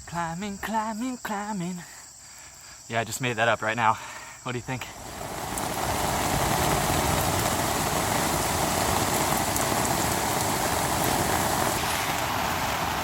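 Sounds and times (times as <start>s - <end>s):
heavy rain on a tent: 4.8s - 13.0s.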